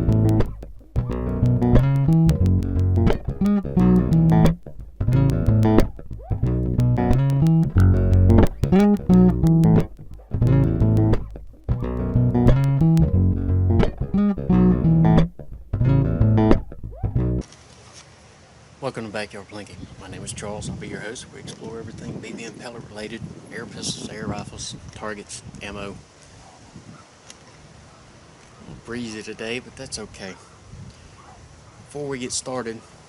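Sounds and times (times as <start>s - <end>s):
plucked bass guitar: 0.0s - 17.4s.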